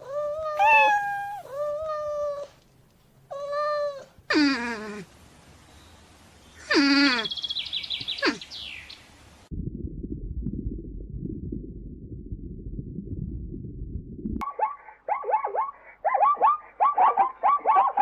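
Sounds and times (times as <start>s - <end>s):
rising and falling animal call: 0.5s - 1.7s
low rumbling noise: 9.4s - 14.4s.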